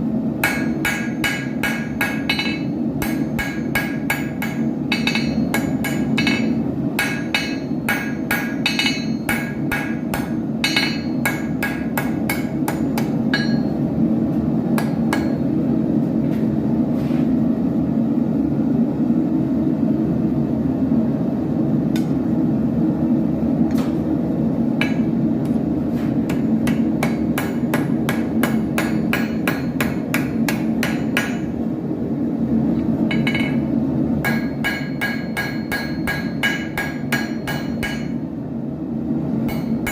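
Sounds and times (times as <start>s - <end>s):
hammer striking iron on anvil: 0.4s - 13.8s, 14.8s - 15.5s, 24.8s - 25.2s, 26.2s - 31.6s, 33.1s - 38.2s, 39.4s - 39.9s.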